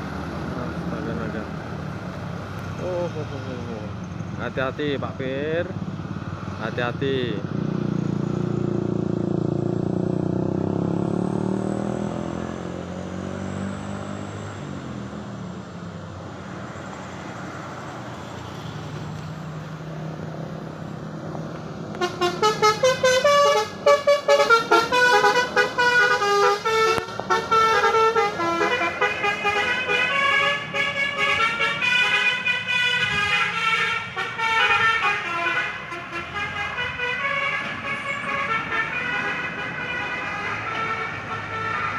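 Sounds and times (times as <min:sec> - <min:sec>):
multi-tone vehicle horn: 0:21.9 - 0:41.9.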